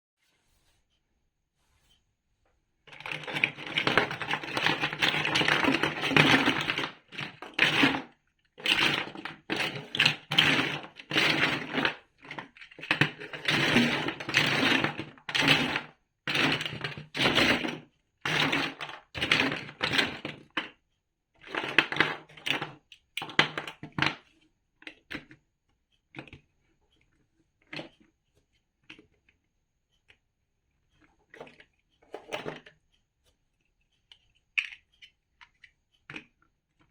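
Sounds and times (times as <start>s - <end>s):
plastic toy bricks clattering: 2.9s - 17.7s, 18.3s - 20.4s, 21.5s - 24.2s.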